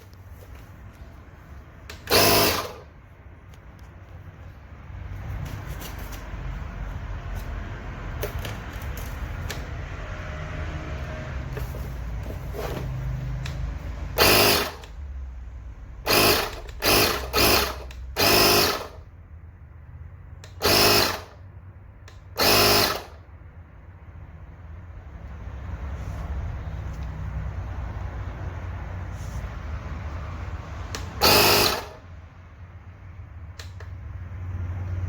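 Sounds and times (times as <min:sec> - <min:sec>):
small electric motor running: 0:02.1 - 0:02.9, 0:14.2 - 0:14.9, 0:16.1 - 0:19.0, 0:20.6 - 0:21.4, 0:22.4 - 0:23.2, 0:31.2 - 0:32.0.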